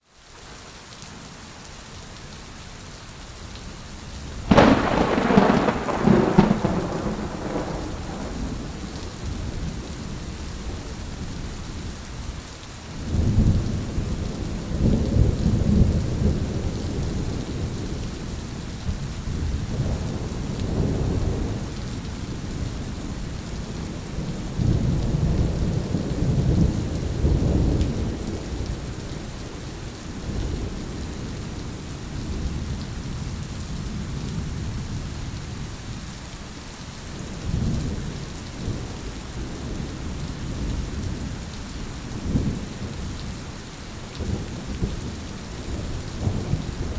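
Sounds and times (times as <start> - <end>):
heavy rain hissing: 0.0 - 46.9
rolling thunder rumbling: 4.5 - 11.4, 44.1 - 46.9.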